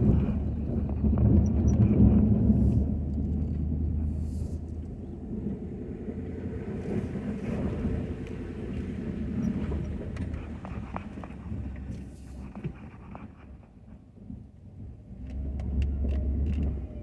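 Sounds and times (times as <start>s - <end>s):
pickup truck engine rumble: 0.0s - 17.0s.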